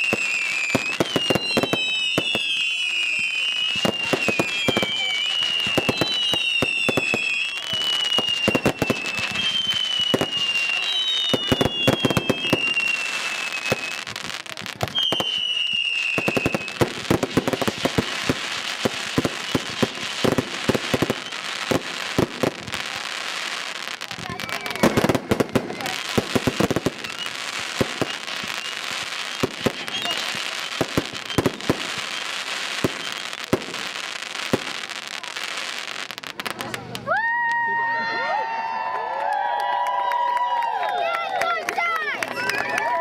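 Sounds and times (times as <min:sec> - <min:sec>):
fireworks bangs and crackles: 0:00.0 - 0:37.6
whistling fireworks: 0:00.0 - 0:43.0.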